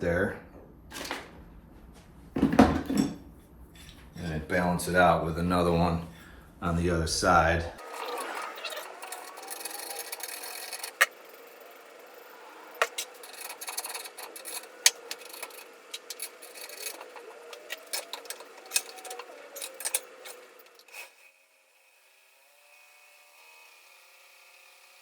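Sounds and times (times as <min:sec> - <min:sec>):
sharp clicks and rattles: 0:07.8 - 0:20.9
buffing attachment spinning whine: 0:07.8 - 0:25.0.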